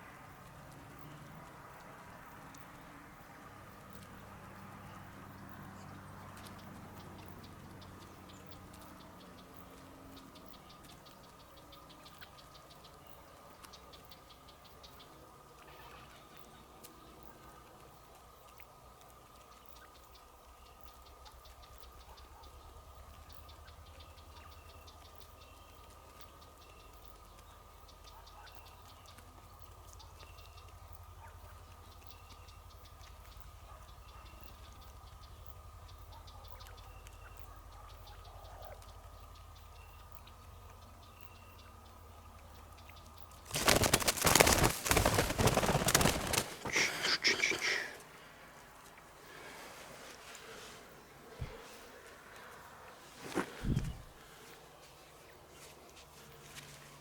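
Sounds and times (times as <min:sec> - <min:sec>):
loud rustling: 0:43.4 - 0:48.0.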